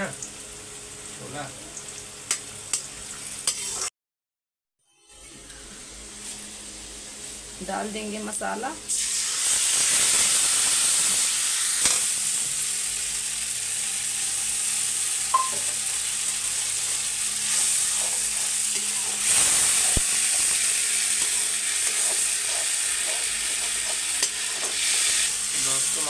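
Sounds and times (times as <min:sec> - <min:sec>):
spices sizzling in hot oil: 0:00.0 - 0:03.9, 0:04.9 - 0:26.0
metal spatula scraping a pan: 0:03.4 - 0:03.9, 0:16.9 - 0:25.2.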